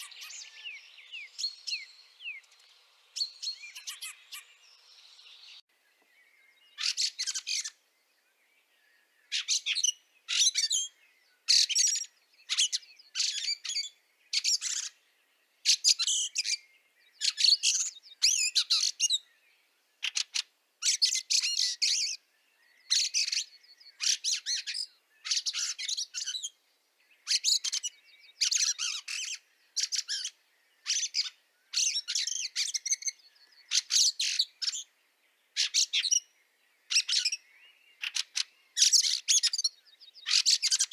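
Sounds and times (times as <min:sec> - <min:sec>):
bird calling in short bursts: 0:03.2 - 0:04.7.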